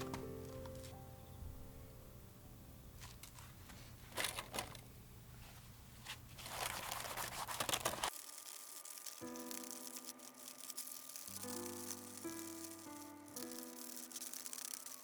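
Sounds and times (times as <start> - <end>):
background music with held notes: 0.0 - 2.4
crinkling scraping handling noise: 3.0 - 15.0.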